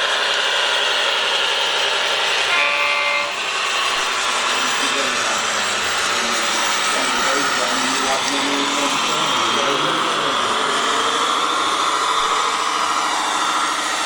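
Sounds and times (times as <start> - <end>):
electric motors whirring: 0.0 - 14.0
short horn tone: 2.5 - 3.4.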